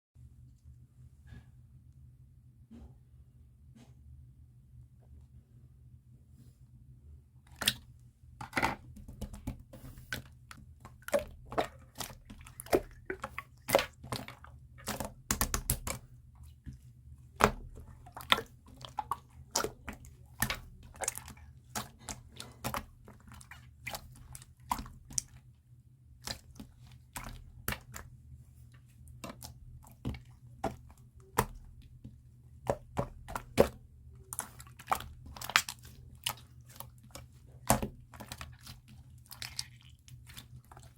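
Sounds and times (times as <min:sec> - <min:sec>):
slime clicking and popping: 0:14.9 - 0:16.0.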